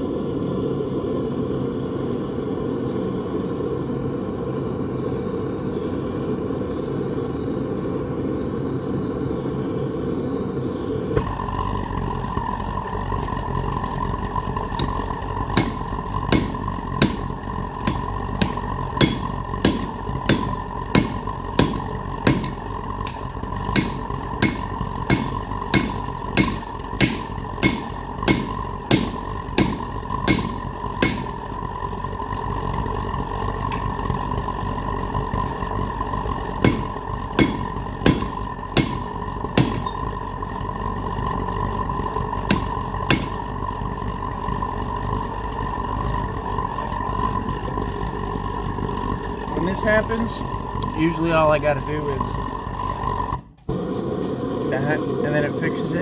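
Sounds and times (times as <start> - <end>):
steady hum: 0.0 - 56.0
hammer striking steel on anvil: 15.6 - 31.4, 36.6 - 40.1, 42.5 - 43.5.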